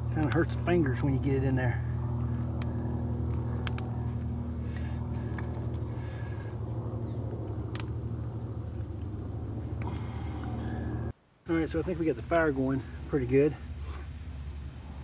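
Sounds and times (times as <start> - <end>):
fire snapping: 0.0 - 11.1
campfire crackling: 0.0 - 15.0
steady low hum: 0.0 - 15.0.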